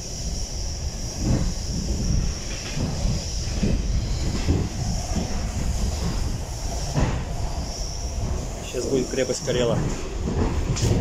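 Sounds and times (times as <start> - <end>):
steady hiss: 0.0 - 11.0
train low rumble: 0.0 - 11.0.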